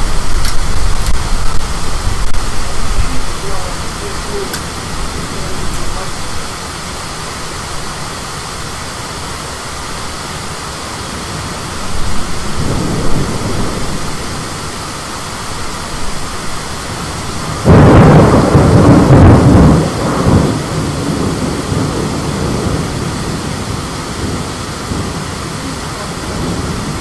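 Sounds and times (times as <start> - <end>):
low rumble of thunder: 0.0 - 8.2, 11.3 - 27.0
steady rain: 0.0 - 27.0
wind: 0.0 - 27.0
loud peal of thunder: 11.9 - 14.8, 17.0 - 27.0.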